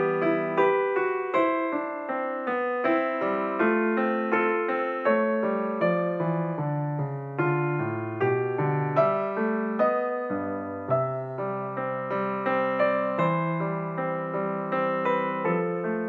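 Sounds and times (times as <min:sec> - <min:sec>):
piano keyboard melody: 0:00.0 - 0:16.0.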